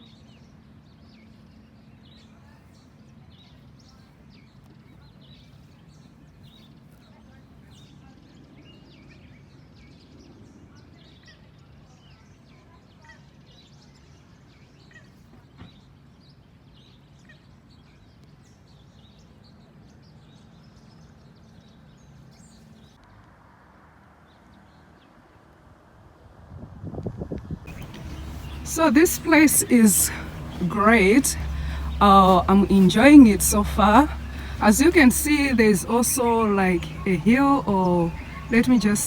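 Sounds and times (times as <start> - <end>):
low background rumble: 27.7 - 39.0
small birds chirping: 27.7 - 39.0.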